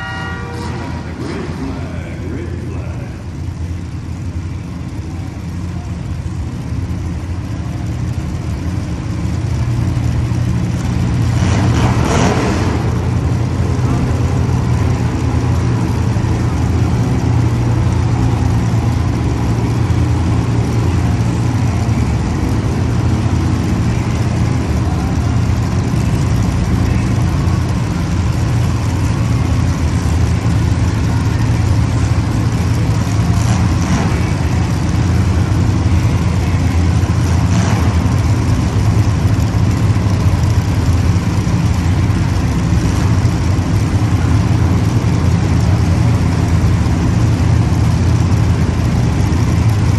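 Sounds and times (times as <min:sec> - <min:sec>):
race engines droning: 0:00.0 - 0:49.9.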